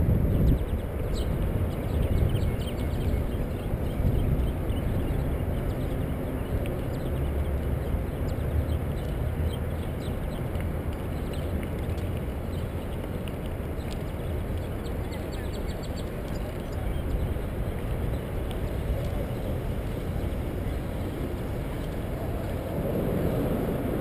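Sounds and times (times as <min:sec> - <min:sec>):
wind buffeting microphone: 0:00.0 - 0:24.0
faint high ticks: 0:05.6 - 0:09.2, 0:09.8 - 0:19.6
bicycle tyre noise: 0:16.4 - 0:24.0.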